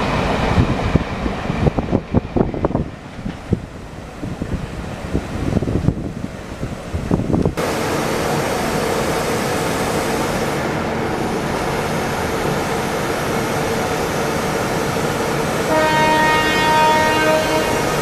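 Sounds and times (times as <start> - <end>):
train rushing past: 0.0 - 18.0
locomotive horn: 15.7 - 18.0.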